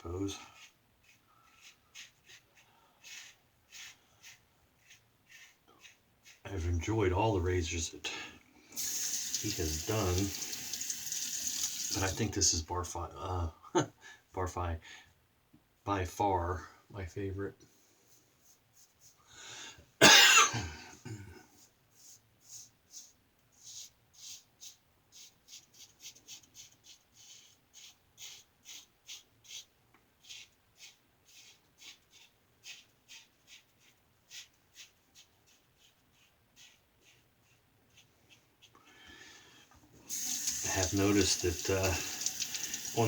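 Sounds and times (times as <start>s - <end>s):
person coughing: 20.0s - 21.5s
razor scraping stubble: 40.1s - 43.0s.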